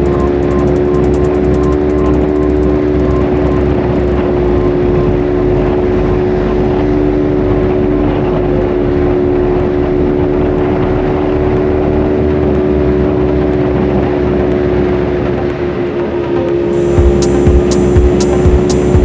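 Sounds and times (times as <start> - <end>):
motorcycle engine running: 0.0 - 10.5, 16.8 - 19.0.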